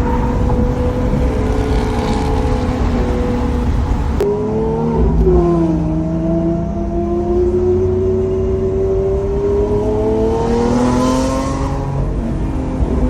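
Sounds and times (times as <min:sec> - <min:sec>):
car engine running: 0:00.0 - 0:04.2.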